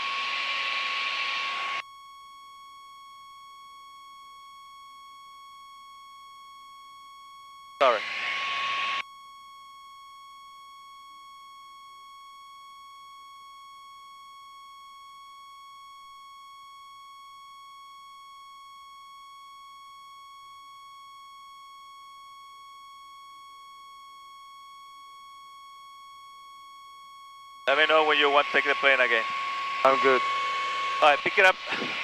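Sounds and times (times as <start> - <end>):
high-pitched electronic tone: 27.7 - 32.0.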